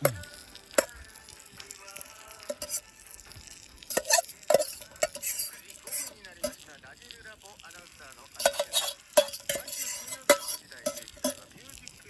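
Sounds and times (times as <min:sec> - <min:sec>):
food sizzling in a pan: 0:00.0 - 0:12.0
utensil clinking and scraping pan: 0:02.4 - 0:02.9, 0:03.9 - 0:06.7, 0:08.3 - 0:11.6.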